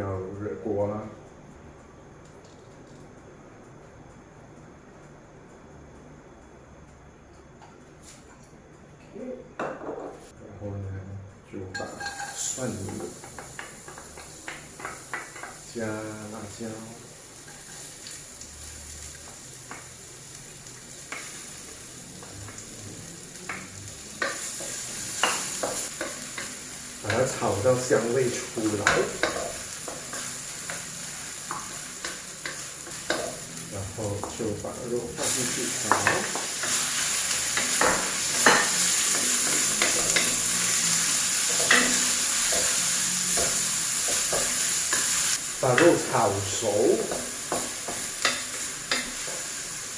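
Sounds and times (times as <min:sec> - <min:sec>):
garlic sizzling in hot oil: 0:11.8 - 0:49.9.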